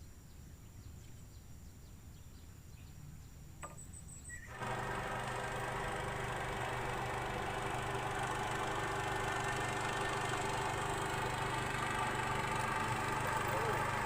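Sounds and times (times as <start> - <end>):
small engine running: 4.4 - 14.0.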